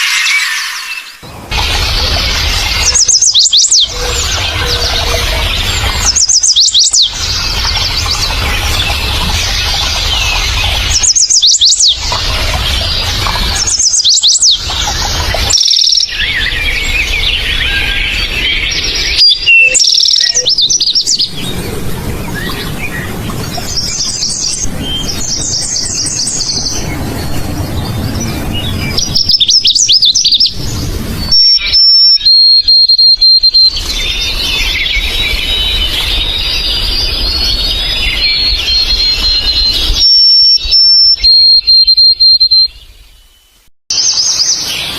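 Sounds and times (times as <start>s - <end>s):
songbirds chirping and trilling: 0.0s - 44.9s
bird high steady whistle: 2.8s - 4.8s, 15.3s - 16.8s, 17.7s - 21.2s, 31.3s - 42.8s
soft bird chattering: 13.6s - 16.1s.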